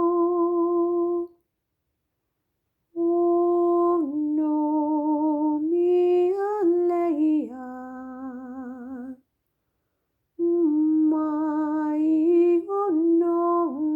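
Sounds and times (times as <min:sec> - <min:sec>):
person singing wordless melody: 0:00.0 - 0:01.4, 0:03.0 - 0:09.2, 0:10.4 - 0:13.9.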